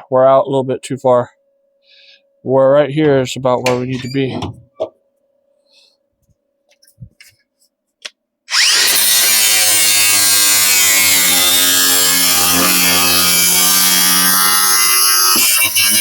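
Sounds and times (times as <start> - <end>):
electric grinder on sheet metal: 8.5 - 16.0.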